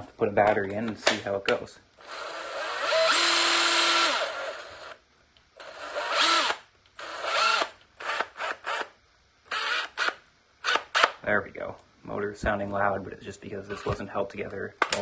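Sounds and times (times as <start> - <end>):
impact driver motor spinning: 2.0 - 5.0, 5.6 - 11.2.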